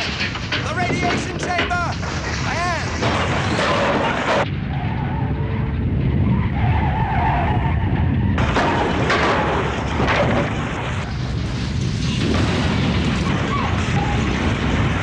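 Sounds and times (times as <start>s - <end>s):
harsh crashing: 0.0s - 4.9s, 8.3s - 15.0s
deep earthquake rumble: 0.0s - 15.0s.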